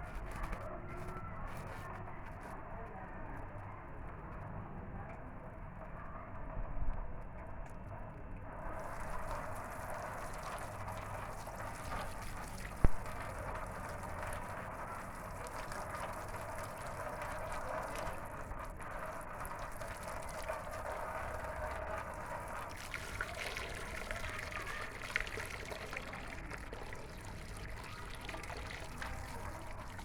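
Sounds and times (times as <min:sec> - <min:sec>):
water running: 0:08.7 - 0:30.0.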